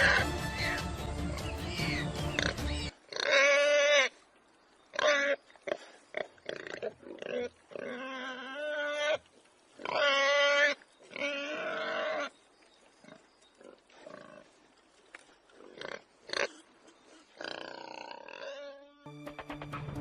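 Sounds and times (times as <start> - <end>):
animal crying: 0.0 - 0.9.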